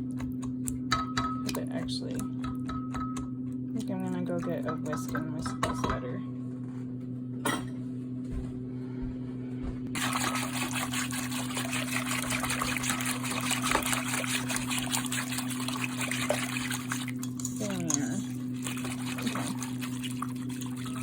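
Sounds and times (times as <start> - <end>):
steady low hum: 0.0 - 21.0
whisk swishing batter in bowl: 9.9 - 21.0.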